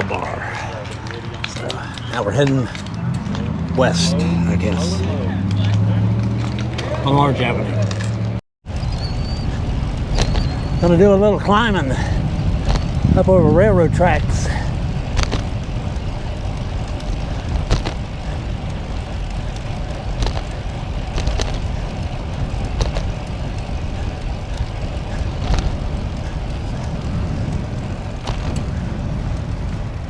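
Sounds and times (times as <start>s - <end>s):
wind rushing over microphone: 8.1s - 30.0s.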